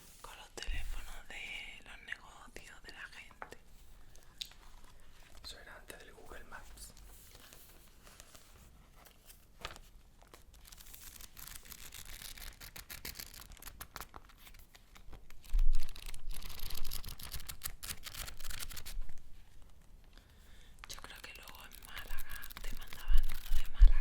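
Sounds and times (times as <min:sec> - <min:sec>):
paper rustling: 0:06.9 - 0:19.8, 0:20.8 - 0:23.9.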